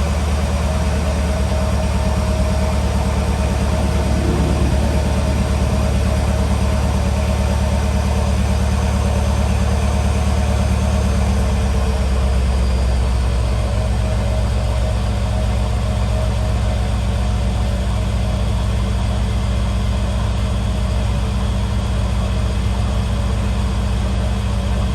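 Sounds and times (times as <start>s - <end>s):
car engine idling: 0.0s - 16.6s.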